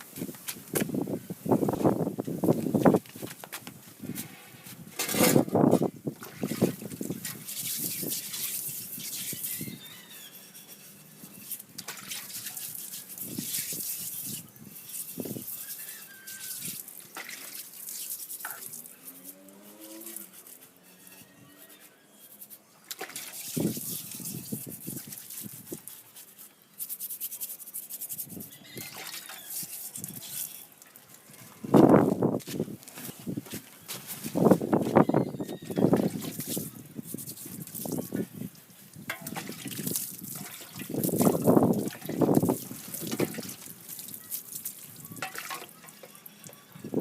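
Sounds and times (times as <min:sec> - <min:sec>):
water splashing: 0:06.2 - 0:09.5, 0:11.8 - 0:14.4, 0:16.3 - 0:20.3, 0:22.9 - 0:25.6, 0:39.1 - 0:46.2
scratchy scrubbing strokes: 0:06.5 - 0:16.9, 0:17.5 - 0:31.7
animal calling: 0:09.4 - 0:11.1.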